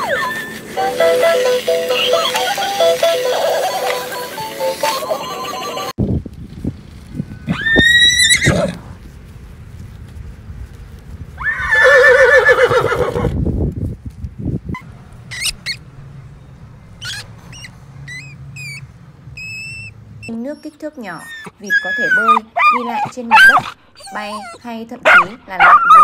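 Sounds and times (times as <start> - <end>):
horse whinnying: 7.5 - 8.8, 11.4 - 13.4.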